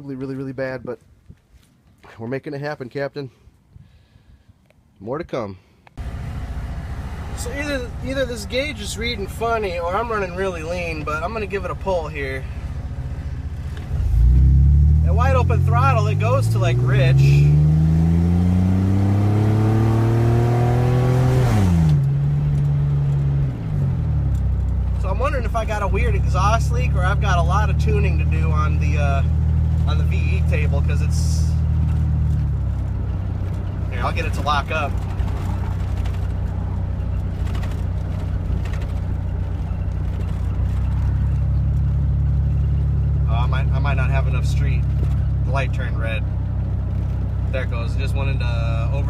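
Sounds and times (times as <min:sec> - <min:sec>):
car engine revving under load: 0:06.0 - 0:49.0.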